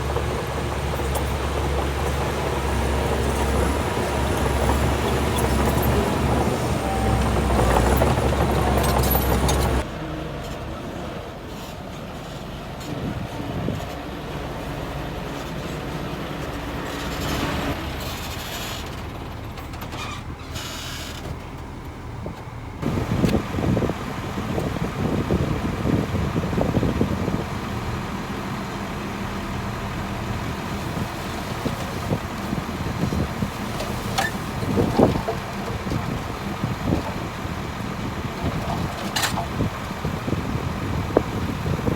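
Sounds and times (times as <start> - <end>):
heavy diesel engine running: 0.0 - 41.9.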